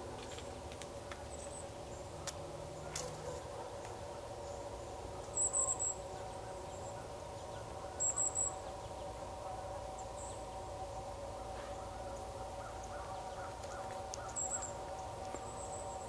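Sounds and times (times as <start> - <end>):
background drone: 0.0 - 16.0
small bird chirping: 4.4 - 9.0, 11.8 - 16.0.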